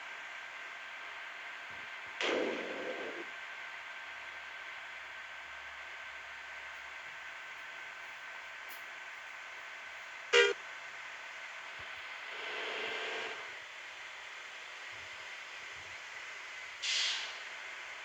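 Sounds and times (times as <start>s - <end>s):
loud horn toot: 10.4s - 10.6s
brief hissing burst: 16.8s - 17.4s.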